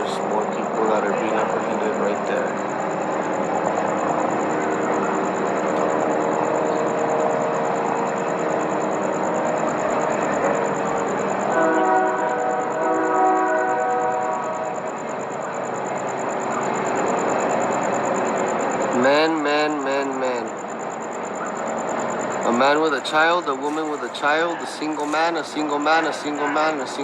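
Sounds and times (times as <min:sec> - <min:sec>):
passing train running: 0:00.0 - 0:27.0
train horn: 0:11.2 - 0:15.0.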